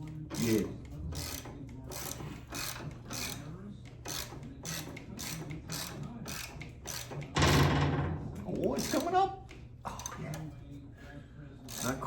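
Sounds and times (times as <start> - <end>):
hand ratchet clicking: 1.2 - 3.4, 4.1 - 7.2
loud knock: 7.4 - 8.3.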